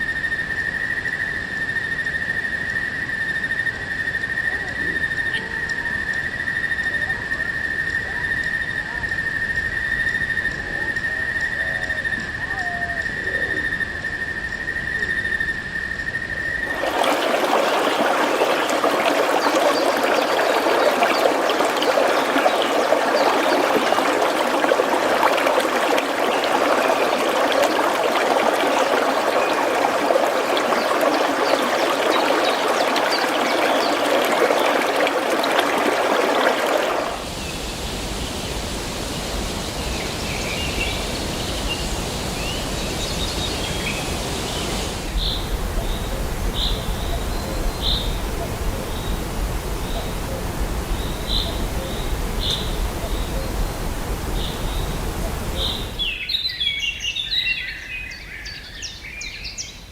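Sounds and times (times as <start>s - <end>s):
steady high whistle-like tone: 0.0s - 16.7s
stream trickling: 16.6s - 56.4s
soft wide hiss: 37.2s - 56.2s.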